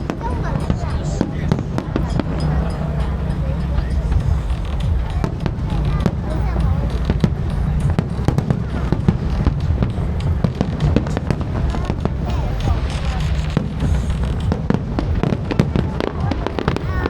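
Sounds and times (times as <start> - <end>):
fireworks bangs and crackles: 0.0 - 17.0
low rumble: 0.0 - 17.0.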